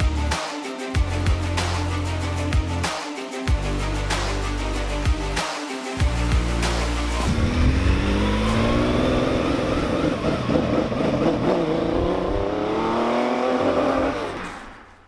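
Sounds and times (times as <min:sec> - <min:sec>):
car engine pulling hard: 0:07.2 - 0:15.0.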